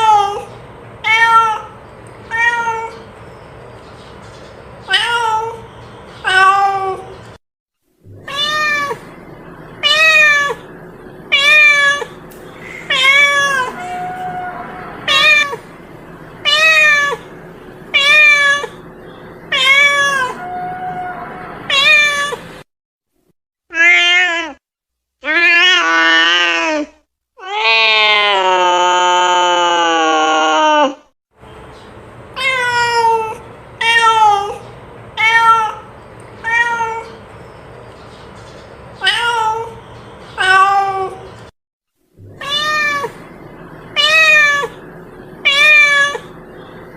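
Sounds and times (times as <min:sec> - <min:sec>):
cat meowing: 0:00.0 - 0:03.0, 0:04.9 - 0:05.6, 0:08.1 - 0:09.1, 0:09.8 - 0:10.6, 0:11.3 - 0:15.7, 0:16.4 - 0:17.3, 0:17.9 - 0:18.8, 0:19.5 - 0:22.5, 0:23.7 - 0:24.6, 0:25.2 - 0:31.0, 0:32.4 - 0:37.2, 0:39.0 - 0:39.8, 0:40.4 - 0:41.3, 0:42.2 - 0:43.2, 0:44.0 - 0:44.8, 0:45.4 - 0:46.4.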